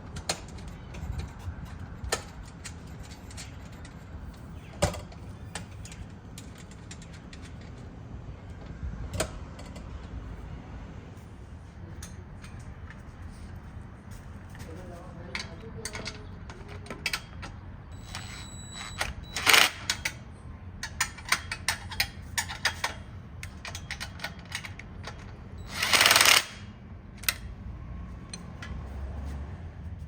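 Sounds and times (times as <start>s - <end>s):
ratchet rasping bursts: 18.0s - 20.2s, 25.6s - 27.4s
ratchet wrench clicking: 25.6s - 27.5s.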